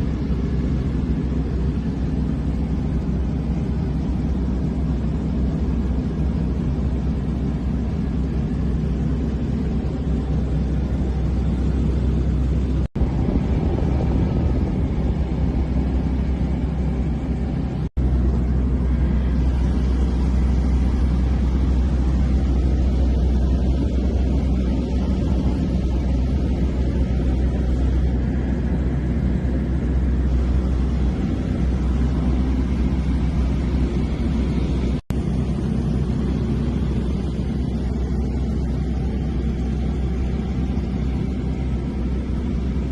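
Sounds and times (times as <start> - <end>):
small airplane engine droning: 0.0 - 42.9.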